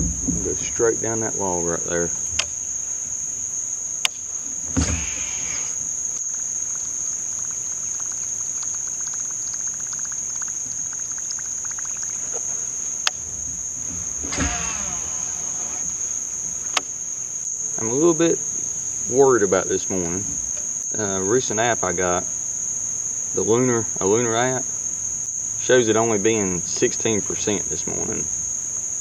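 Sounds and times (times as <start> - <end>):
insects chirring: 0.0 - 29.0
fishing reel whirring on cast: 14.1 - 16.1.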